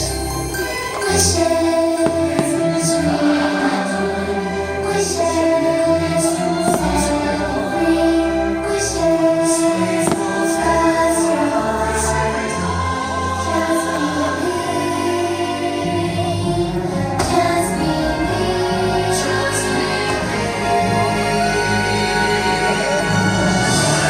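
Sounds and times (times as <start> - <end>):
orchestral music with choir: 0.0 - 24.0
firework bursts: 2.0 - 3.0, 10.0 - 10.9.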